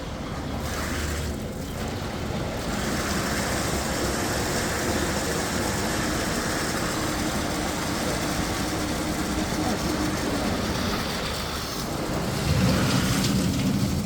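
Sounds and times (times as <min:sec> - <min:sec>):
constant rushing noise: 0:00.0 - 0:14.0
engine running: 0:00.0 - 0:14.0.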